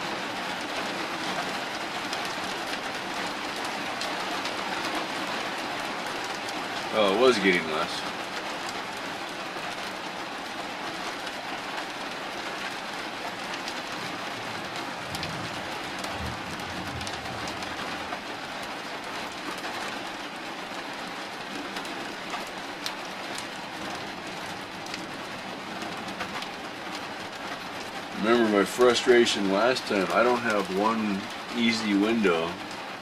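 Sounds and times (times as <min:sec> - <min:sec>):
steady rain falling: 0:00.0 - 0:33.0
low thunder rumble: 0:14.0 - 0:18.3.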